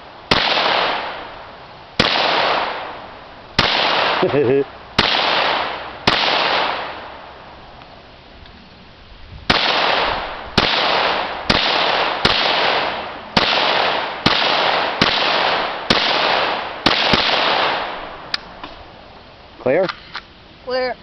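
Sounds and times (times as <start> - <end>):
pistol shots: 0.3 - 1.2, 2.0 - 2.9, 3.6 - 4.4, 5.0 - 7.1, 9.5 - 18.0.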